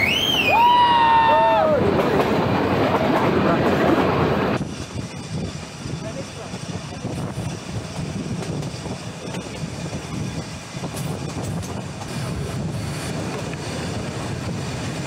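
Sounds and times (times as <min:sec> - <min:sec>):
low rumble of train in motion: 0:00.0 - 0:15.0
wind on microphone: 0:01.7 - 0:15.0.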